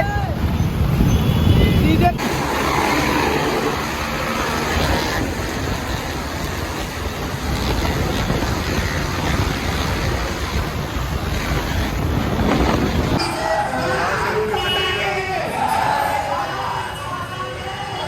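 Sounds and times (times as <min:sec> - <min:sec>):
wind rushing over microphone: 0:00.0 - 0:13.2
motorcycle engine running: 0:02.2 - 0:13.2.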